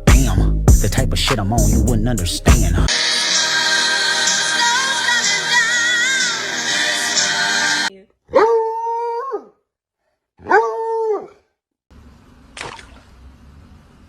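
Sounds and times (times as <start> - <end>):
dog howling: 8.4 - 9.5, 10.4 - 11.4.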